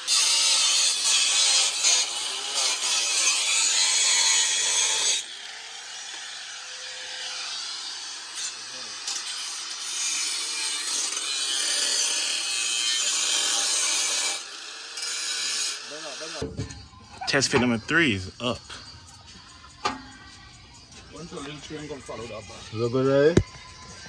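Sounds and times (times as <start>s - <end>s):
exhaust pipe being cut: 0.0s - 16.6s.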